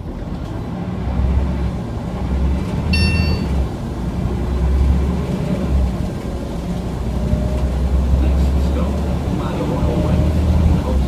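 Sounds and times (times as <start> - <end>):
bus engine low rumble: 0.0 - 11.0
brief high ringing tone: 2.9 - 3.6.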